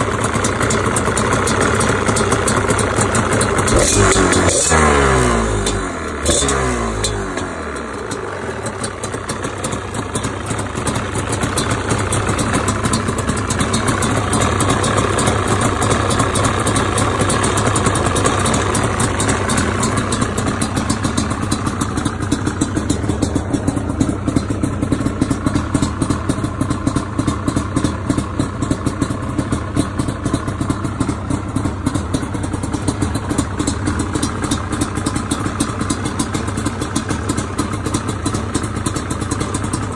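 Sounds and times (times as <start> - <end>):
two-stroke engine idling: 0.0 - 39.9.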